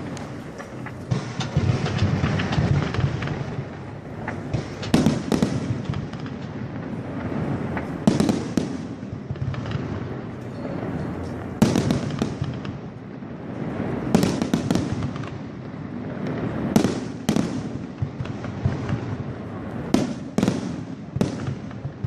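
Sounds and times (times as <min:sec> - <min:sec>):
fireworks bangs with echo: 0:00.0 - 0:22.0
fireworks crackle and rumble: 0:00.0 - 0:22.0.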